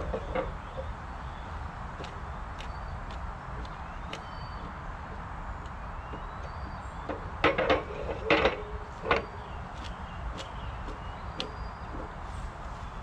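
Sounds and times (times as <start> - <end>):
birds chirping: 0.0 - 13.0
metallic knocks and clanks: 6.1 - 9.4.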